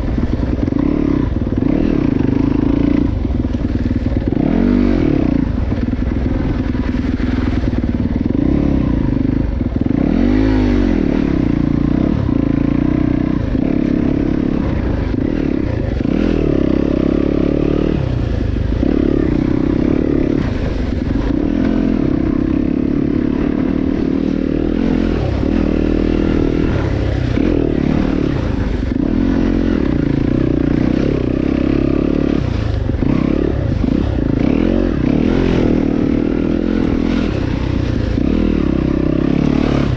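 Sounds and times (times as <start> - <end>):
bike rattling and clatter: 0.0 - 10.1
dirt bike motor revving: 0.0 - 39.9.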